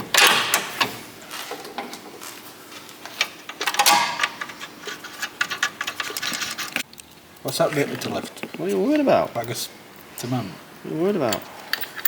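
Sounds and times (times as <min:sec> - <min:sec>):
tools and metal parts clattering: 0:00.0 - 0:02.3, 0:03.1 - 0:06.8, 0:11.2 - 0:12.0.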